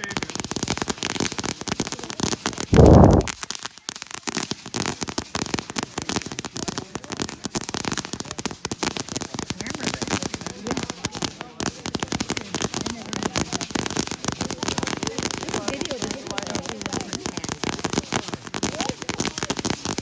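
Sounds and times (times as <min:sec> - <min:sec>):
fireworks crackling: 0:00.2 - 0:20.0.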